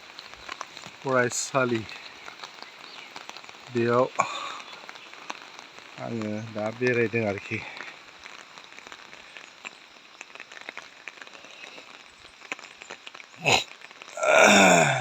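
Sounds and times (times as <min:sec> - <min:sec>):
light rain pattering: 0:00.0 - 0:15.0
falling calls: 0:13.4 - 0:15.0.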